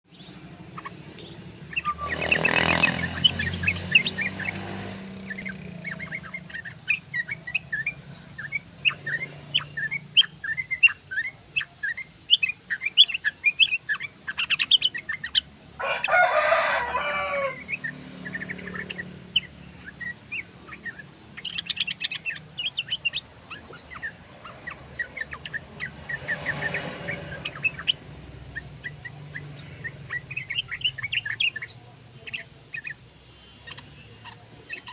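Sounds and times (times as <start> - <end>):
bird chattering chirps: 0.1 - 34.9
rooster crowing: 15.8 - 17.9.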